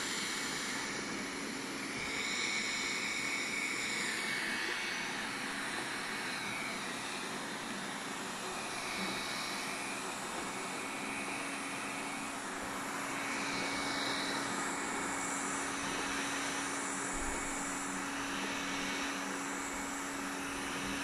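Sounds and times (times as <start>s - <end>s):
robot vacuum running: 0.0s - 21.0s.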